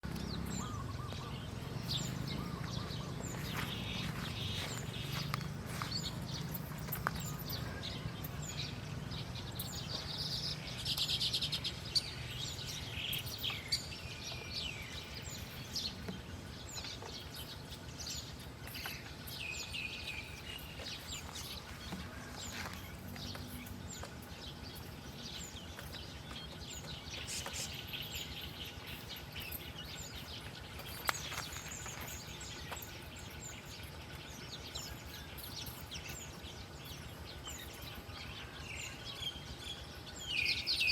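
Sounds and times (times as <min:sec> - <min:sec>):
buzzy bird trill: 0:00.0 - 0:40.9
small birds chirping: 0:00.0 - 0:40.9
steady background noise: 0:00.0 - 0:40.9.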